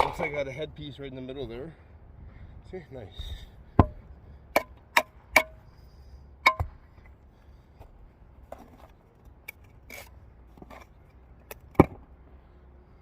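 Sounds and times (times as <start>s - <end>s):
tool tapping on brick: 3.8s - 5.6s, 6.4s - 6.8s, 11.5s - 12.0s.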